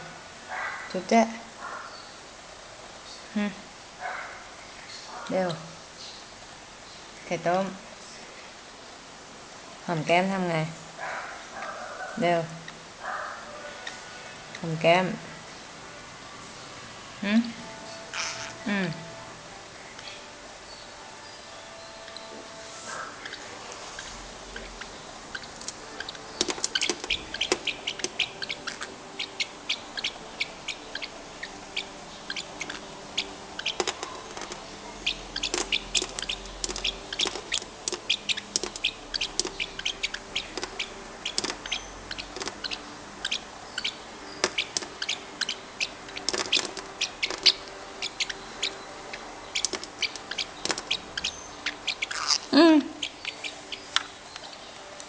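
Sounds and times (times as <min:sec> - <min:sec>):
bird clicking chirps: 0:24.6 - 0:54.5.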